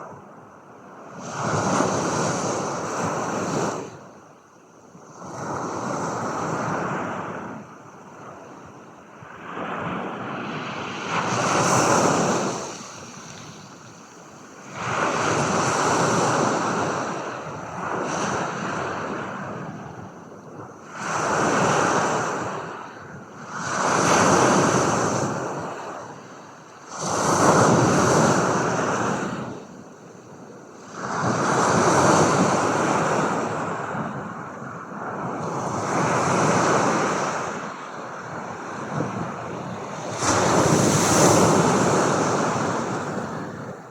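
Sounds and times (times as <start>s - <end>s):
ocean waves washing in: 36.9s - 43.9s.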